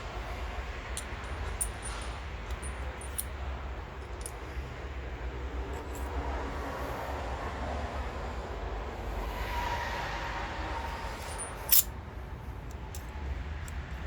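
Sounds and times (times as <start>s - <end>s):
steady low hum: 0.0s - 14.0s
workshop handling noises: 0.9s - 3.4s.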